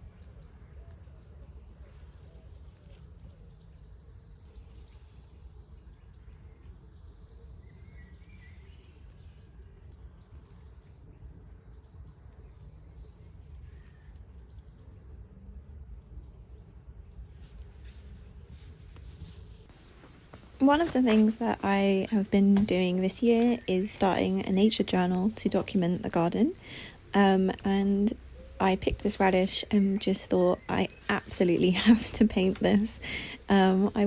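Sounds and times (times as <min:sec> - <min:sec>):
low outdoor rumble: 0:15.0 - 0:34.0.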